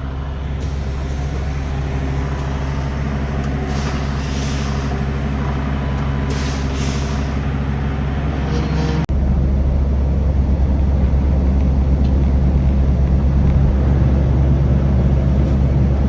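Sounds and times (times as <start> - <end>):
air hissing: 0.0 - 8.7
diesel truck engine running: 0.0 - 16.0.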